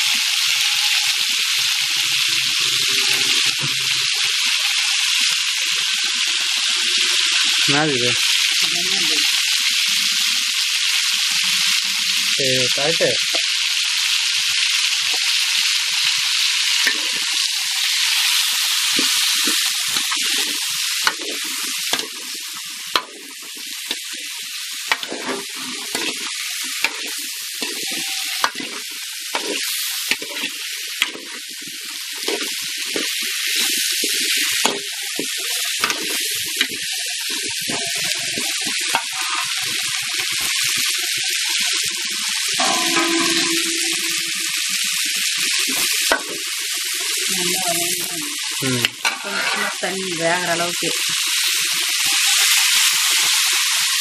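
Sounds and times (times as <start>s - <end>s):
mango slices sizzling in a pan: 0.0s - 54.0s
metal spatula scraping a pan: 16.8s - 24.2s, 24.9s - 36.7s, 37.6s - 39.8s, 42.6s - 45.0s, 49.0s - 50.0s.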